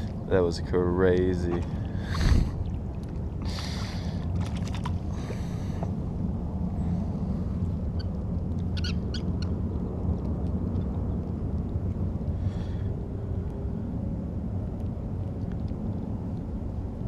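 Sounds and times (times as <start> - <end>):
boat motor humming: 0.0 - 10.0.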